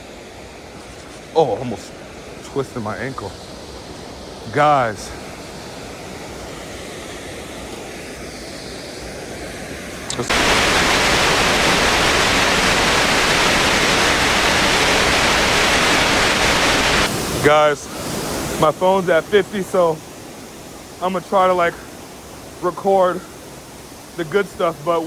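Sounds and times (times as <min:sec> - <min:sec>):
waterfall roar: 0:00.0 - 0:25.0.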